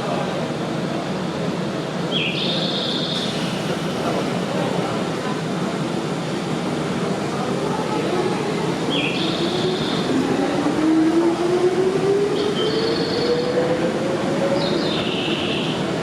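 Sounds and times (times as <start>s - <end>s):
electric train running: 3.2s - 6.7s.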